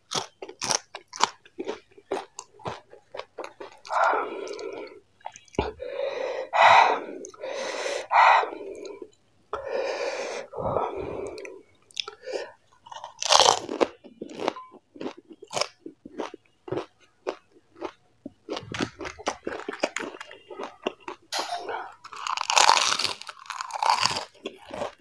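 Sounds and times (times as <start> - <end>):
crunching and chewing: 0.0 - 5.7, 11.1 - 25.0.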